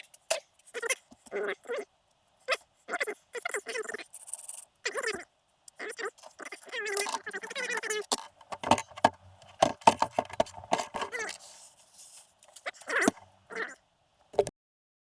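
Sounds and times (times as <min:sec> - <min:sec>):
metal tools clinking and knocking: 0:07.0 - 0:11.4.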